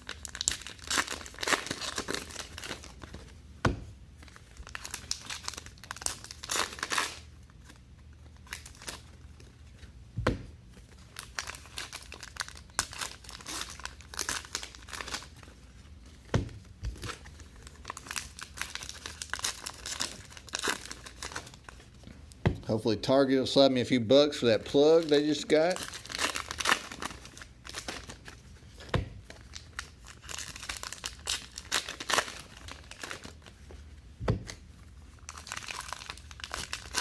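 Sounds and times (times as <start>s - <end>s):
card pack wrappers crinkling: 0.0s - 3.2s, 4.3s - 7.8s, 10.8s - 15.8s, 16.9s - 22.0s, 24.2s - 33.8s, 35.1s - 37.0s.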